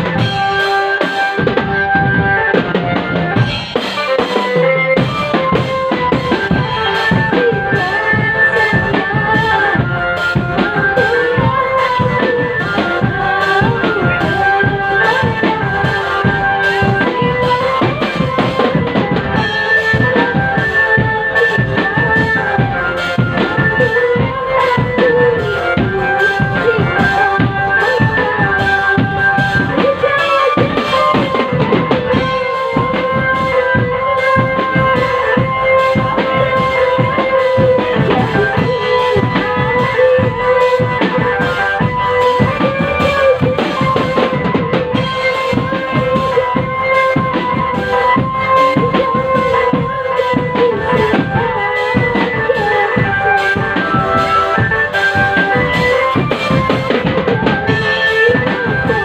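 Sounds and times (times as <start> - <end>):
held melody line: 0.0 - 59.0
snare and bass drums: 0.0 - 59.0.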